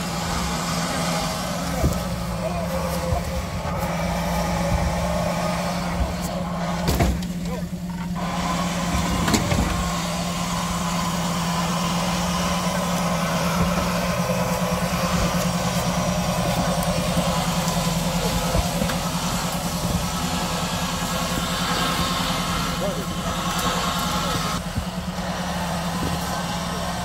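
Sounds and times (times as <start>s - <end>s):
vehicle engine at low revs: 0.0s - 27.0s.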